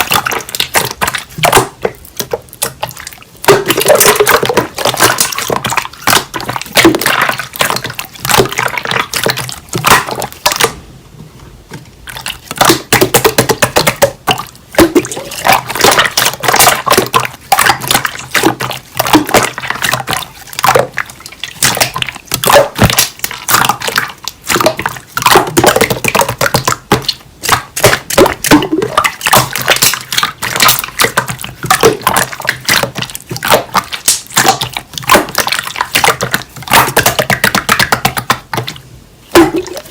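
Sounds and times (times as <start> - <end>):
slime squishing wet clicks: 12.1 - 38.8.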